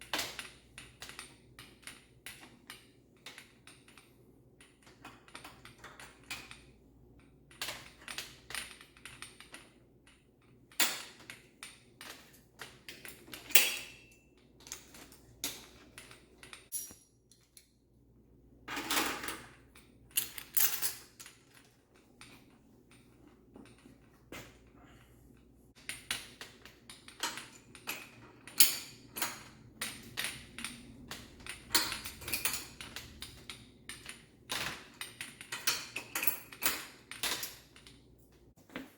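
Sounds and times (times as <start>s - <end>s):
metallic tool clicks and clinks: 16.7s - 17.7s.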